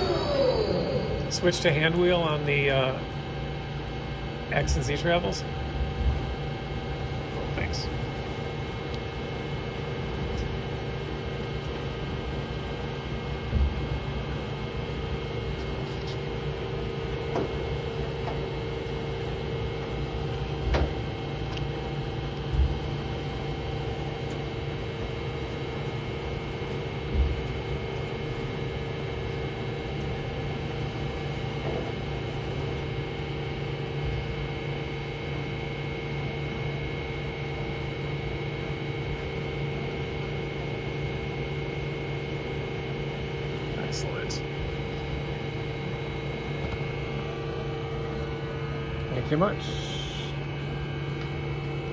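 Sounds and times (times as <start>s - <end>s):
lathe humming: 0.0s - 4.4s.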